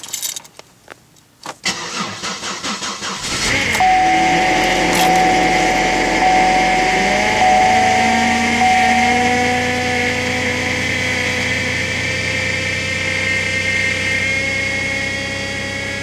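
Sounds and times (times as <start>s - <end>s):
car engine idling: 2.8s - 16.0s
high whine: 3.5s - 15.9s.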